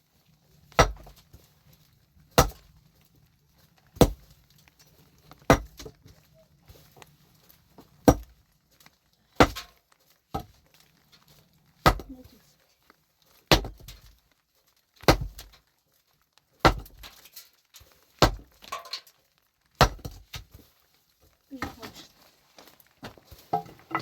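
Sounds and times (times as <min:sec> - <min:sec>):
hand tool striking hard material: 0:00.7 - 0:01.2, 0:02.4 - 0:02.7, 0:04.0 - 0:04.3, 0:05.4 - 0:06.0, 0:08.0 - 0:08.4, 0:09.4 - 0:10.5, 0:11.8 - 0:12.3, 0:13.5 - 0:14.1, 0:15.0 - 0:15.6, 0:16.6 - 0:17.2, 0:18.2 - 0:19.0, 0:19.8 - 0:20.6.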